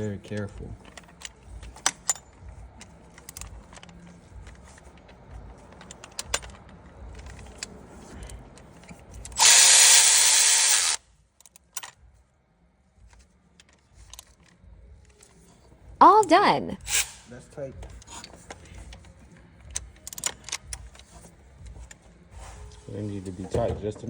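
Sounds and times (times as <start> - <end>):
cordless power tool driving bolts: 9.3 - 11.0.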